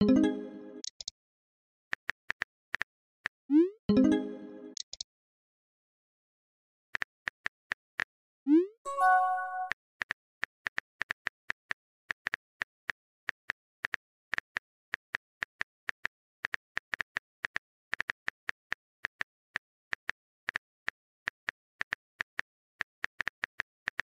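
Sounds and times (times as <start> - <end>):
message alert chime: 0.0 - 0.8, 3.9 - 4.8, 8.9 - 9.7.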